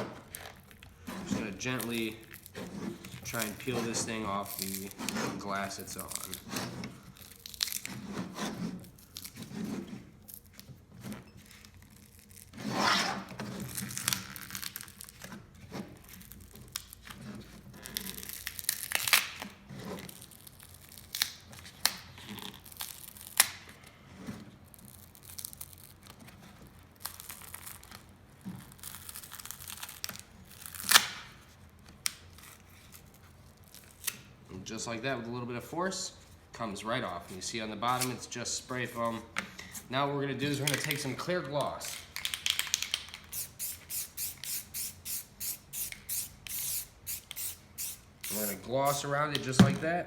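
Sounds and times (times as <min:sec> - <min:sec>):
spray foam tearing and crackling: 0:01.4 - 0:06.6, 0:42.6 - 0:49.2.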